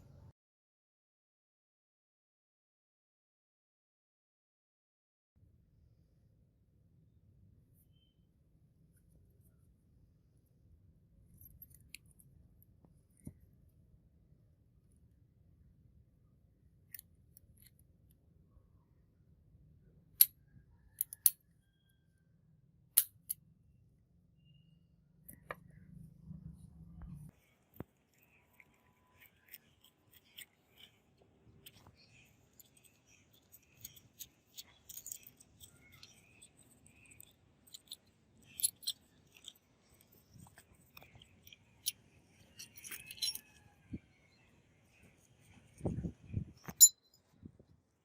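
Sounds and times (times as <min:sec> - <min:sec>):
small metal parts clinking: 0:21.0 - 0:21.4, 0:31.6 - 0:43.7.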